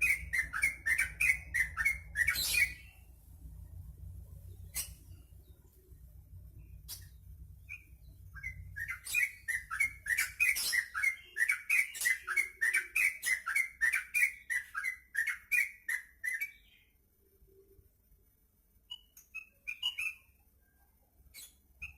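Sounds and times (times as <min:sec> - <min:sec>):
bird chattering song: 0:00.0 - 0:03.0, 0:04.4 - 0:05.8, 0:06.6 - 0:16.8, 0:18.9 - 0:20.4.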